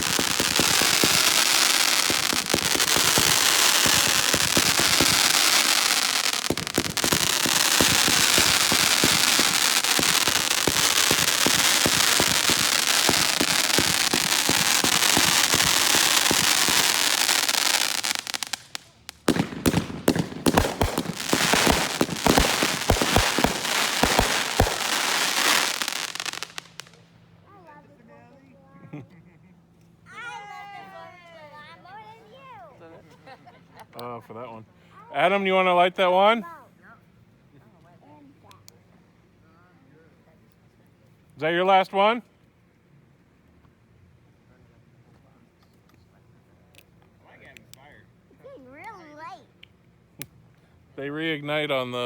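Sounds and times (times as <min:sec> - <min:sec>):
fireworks sharp bangs: 0:00.0 - 0:27.0
fireworks crackling: 0:00.0 - 0:27.1.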